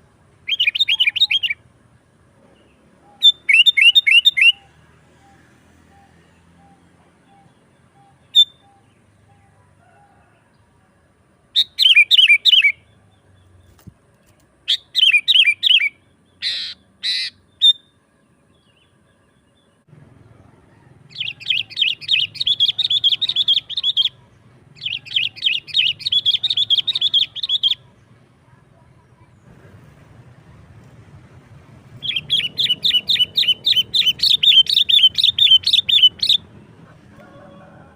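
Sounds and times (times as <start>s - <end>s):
bird calling and chattering: 0.4s - 1.6s, 3.0s - 9.5s, 11.6s - 13.9s, 14.7s - 17.8s, 21.1s - 28.1s, 31.9s - 37.2s
low background rumble: 25.6s - 37.9s.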